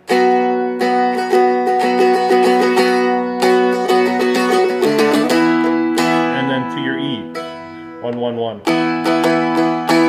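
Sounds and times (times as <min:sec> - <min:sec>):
dulcimer strummed: 0:00.0 - 0:10.0.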